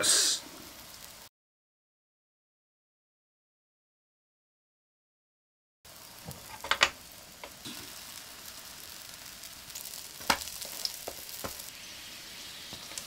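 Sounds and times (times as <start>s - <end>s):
pancakes frying in oil: 0.2s - 1.3s, 5.9s - 13.0s.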